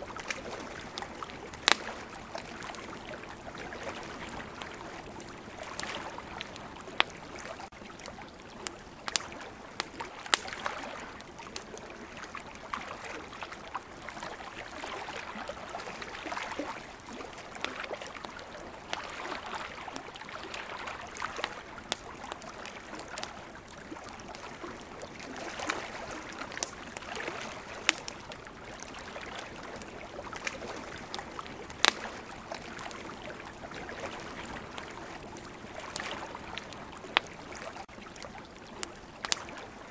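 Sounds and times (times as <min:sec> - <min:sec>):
ocean waves: 0:00.0 - 0:07.7, 0:11.9 - 0:37.9
campfire crackling: 0:00.0 - 0:39.9
fire pops and snaps: 0:00.1 - 0:10.8, 0:21.0 - 0:39.5.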